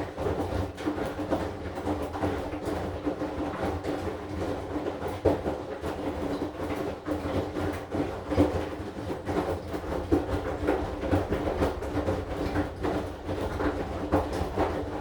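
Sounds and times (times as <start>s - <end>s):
laundry knocking in drum: 0.0s - 15.0s
washing machine motor hum: 7.2s - 15.0s.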